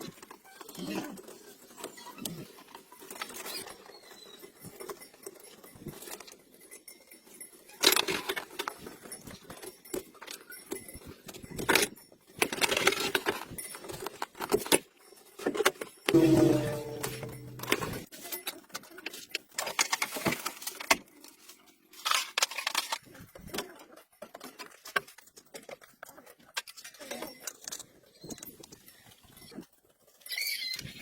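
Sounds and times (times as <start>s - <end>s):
metal scraping: 16.1s - 18.0s.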